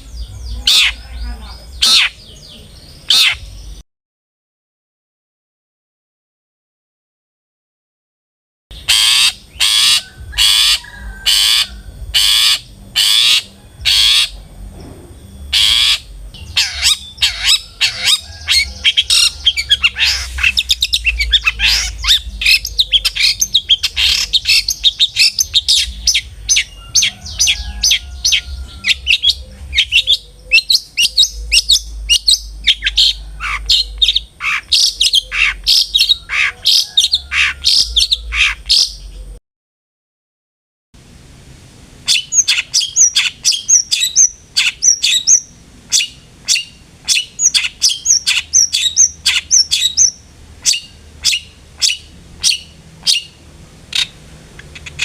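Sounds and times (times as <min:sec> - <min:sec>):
shrike screeching and chattering: 0:08.9 - 0:14.3, 0:15.5 - 0:30.1.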